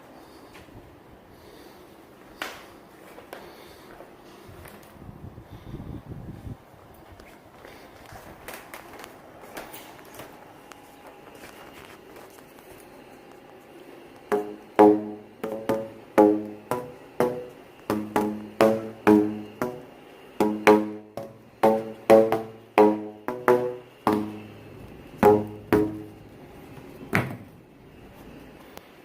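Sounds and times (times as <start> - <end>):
plucked melody: 14.3 - 24.6, 25.2 - 26.2.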